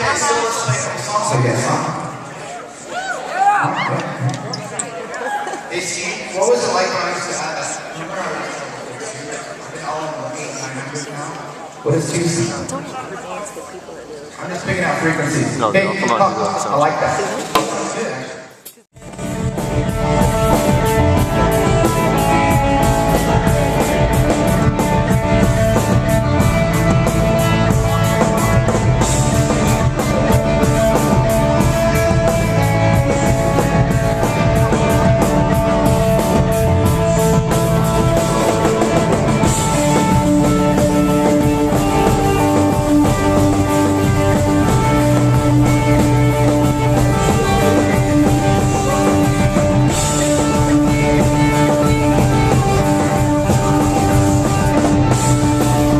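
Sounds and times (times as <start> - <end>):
drum kit: 19.0 - 55.9
electric guitar: 19.0 - 55.9.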